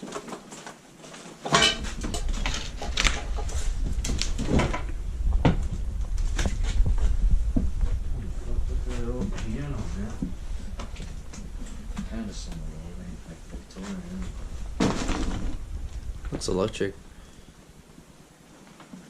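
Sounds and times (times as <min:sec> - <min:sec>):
footsteps creaking on damaged floor: 0:00.0 - 0:19.0
low rumble on microphone: 0:01.7 - 0:18.4.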